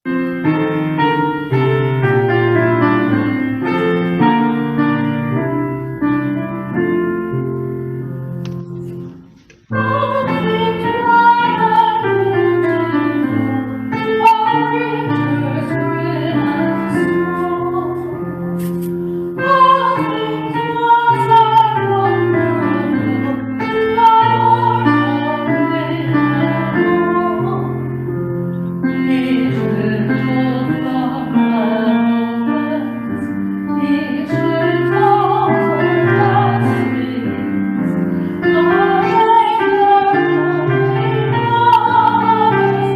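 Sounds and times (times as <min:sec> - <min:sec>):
piano accompaniment: 0:00.0 - 0:42.9
woman singing: 0:09.7 - 0:18.5, 0:19.4 - 0:28.0, 0:28.8 - 0:42.9.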